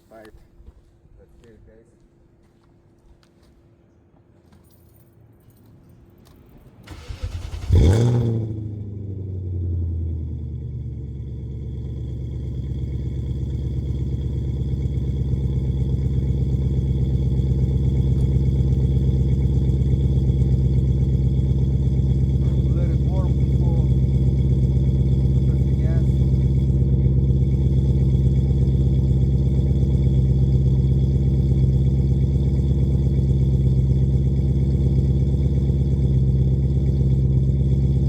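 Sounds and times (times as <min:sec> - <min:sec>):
car engine starting and idling: 0:06.5 - 0:38.0
starter motor cranking: 0:06.9 - 0:08.0.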